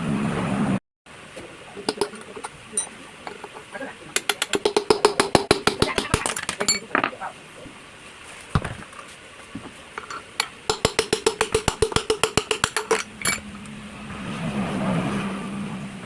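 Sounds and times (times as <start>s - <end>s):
hammer tapping on metal: 1.9s - 3.6s, 4.2s - 7.1s, 10.0s - 13.4s.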